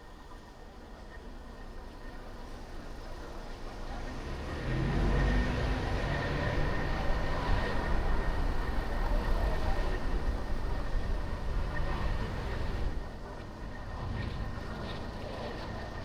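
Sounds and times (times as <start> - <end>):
car engine and tyre noise: 0.0 - 16.0.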